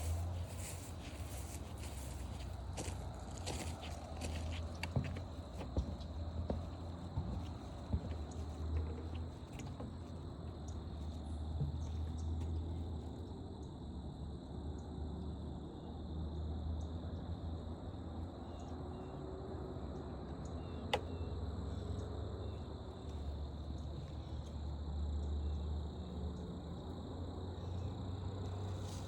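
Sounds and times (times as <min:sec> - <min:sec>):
crickets trilling: 0:00.0 - 0:29.0.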